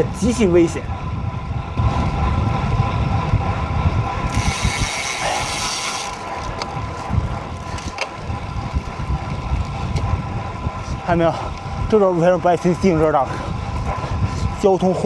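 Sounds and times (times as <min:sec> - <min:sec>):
wind rumble on microphone: 0:00.0 - 0:15.0
bike freewheel ratcheting: 0:01.9 - 0:14.4.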